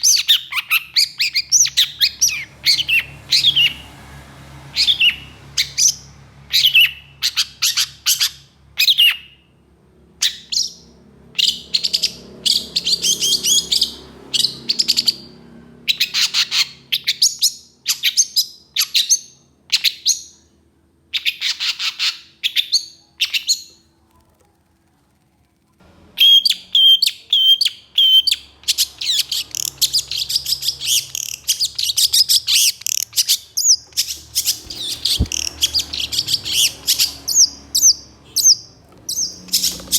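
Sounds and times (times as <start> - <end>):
bird singing harsh chattering notes: 0.0 - 3.9, 10.2 - 20.5, 26.2 - 39.9.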